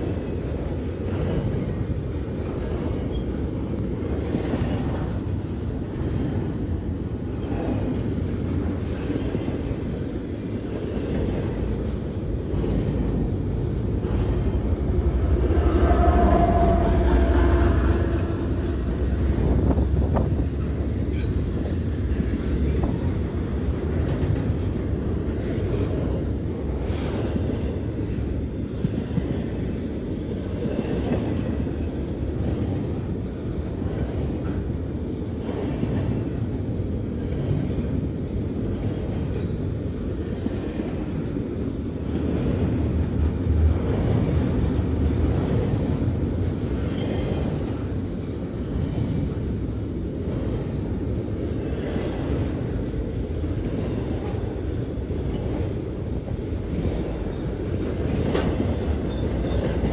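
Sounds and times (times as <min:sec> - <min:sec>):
steel wheels rumbling on rails: 0:00.0 - 0:59.9.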